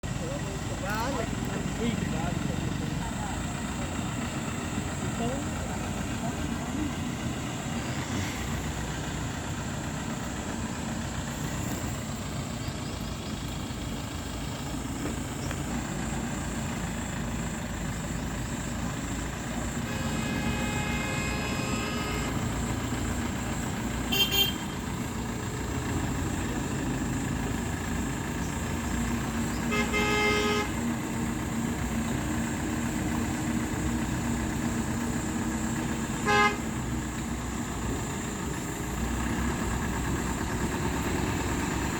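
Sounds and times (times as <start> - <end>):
road traffic: 0.0 - 41.9
vehicle horns honking: 19.7 - 22.7, 24.0 - 24.8, 29.5 - 30.9, 36.1 - 36.9.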